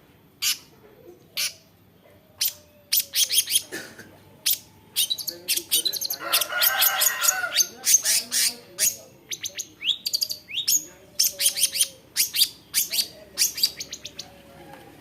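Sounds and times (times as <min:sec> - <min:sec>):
shrike chirping: 0:04.4 - 0:14.3.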